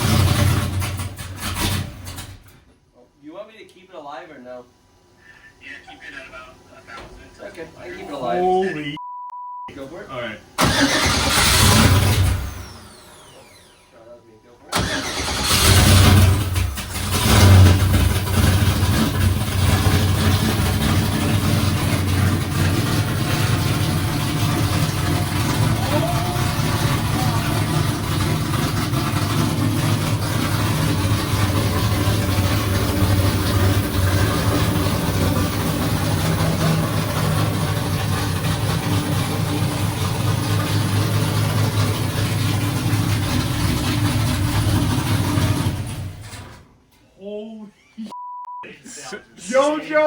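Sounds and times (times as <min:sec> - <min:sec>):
car engine starting and idling: 0:00.0 - 0:02.9, 0:09.8 - 0:14.1, 0:14.7 - 0:46.9.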